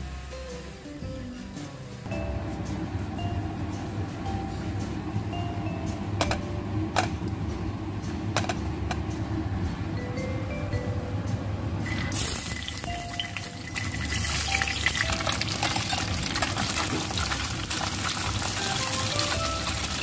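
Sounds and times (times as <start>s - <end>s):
tofu sizzling in hot oil: 12.1s - 20.0s.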